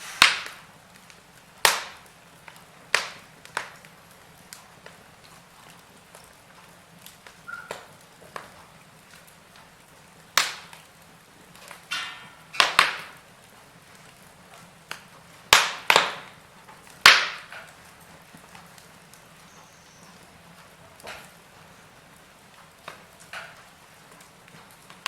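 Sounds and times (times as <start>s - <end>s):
short hiss: 0.0s - 0.7s
wood fire crackling: 0.0s - 25.0s.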